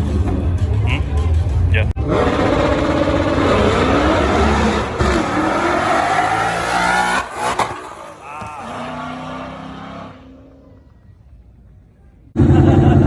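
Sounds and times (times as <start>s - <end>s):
race car engine accelerating: 1.1s - 10.8s.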